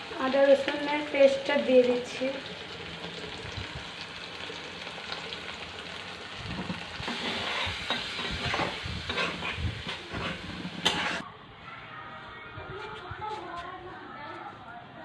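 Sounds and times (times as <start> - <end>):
food sizzling in hot oil: 0.0 - 11.2
spatula scraping a pan: 6.5 - 11.2.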